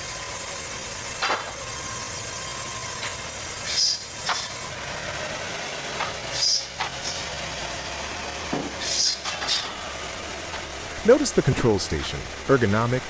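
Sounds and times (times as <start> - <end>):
bandsaw cutting log: 0.0 - 12.9
short hissing bursts: 3.6 - 4.6, 6.3 - 7.3, 8.8 - 9.6.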